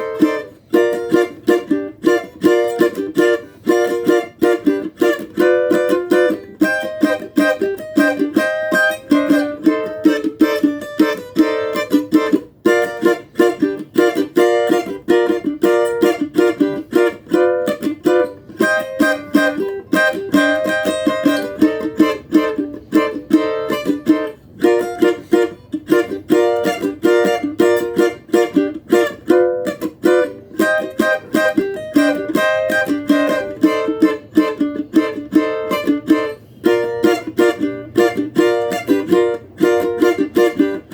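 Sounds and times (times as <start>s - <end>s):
small guitar strummed: 0.0s - 40.9s.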